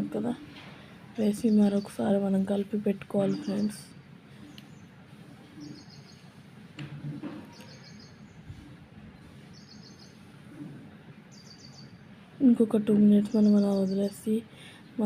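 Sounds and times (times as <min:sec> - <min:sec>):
faint background noise: 0:00.0 - 0:15.0
small bird chirping: 0:05.6 - 0:06.4, 0:07.5 - 0:08.6, 0:09.4 - 0:10.3, 0:11.3 - 0:12.0.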